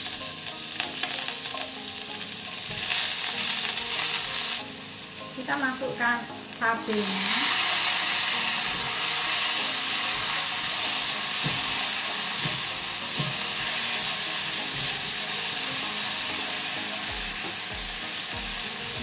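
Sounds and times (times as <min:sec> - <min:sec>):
paste sizzling in hot fat: 0:00.0 - 0:19.0
spatula scraping a wok: 0:07.0 - 0:19.0.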